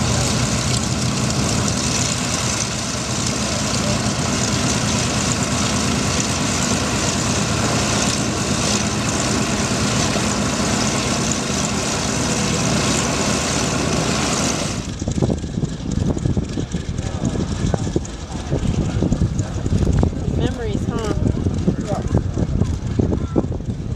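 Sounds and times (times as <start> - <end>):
radial piston engine droning: 0.0 - 14.9.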